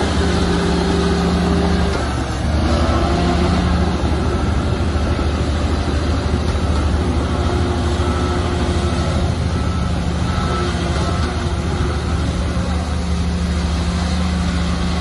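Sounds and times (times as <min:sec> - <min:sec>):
diesel machinery rumbling: 0:00.0 - 0:15.0.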